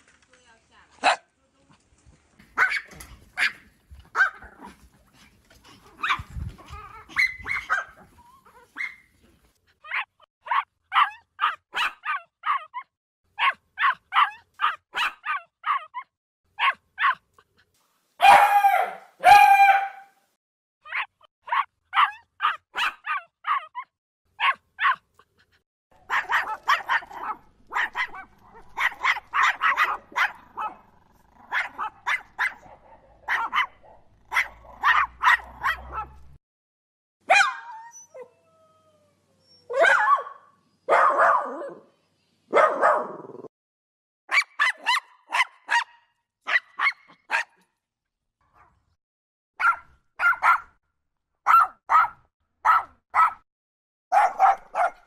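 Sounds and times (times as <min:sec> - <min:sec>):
puppies barking and yipping: 0:05.6 - 0:09.2, 0:18.2 - 0:20.0, 0:20.9 - 0:25.0, 0:26.0 - 0:30.8, 0:31.4 - 0:36.4, 0:37.3 - 0:38.3, 0:54.2 - 0:55.0.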